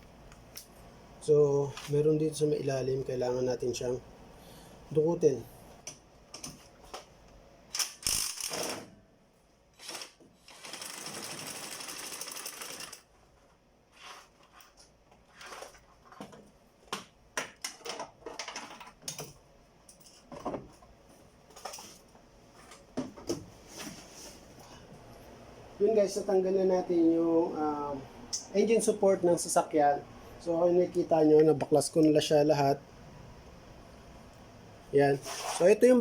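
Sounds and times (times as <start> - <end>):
ratchet wrench clicking: 7.8 - 8.7.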